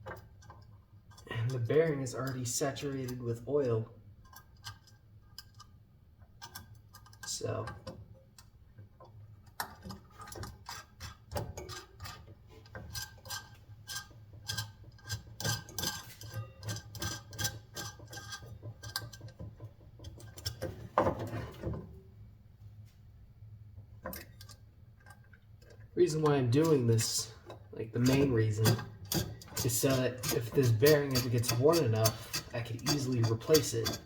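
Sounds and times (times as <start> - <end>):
metal parts clicking and knocking: 4.2 - 21.8, 24.0 - 34.0
metal parts scraping: 26.1 - 34.0.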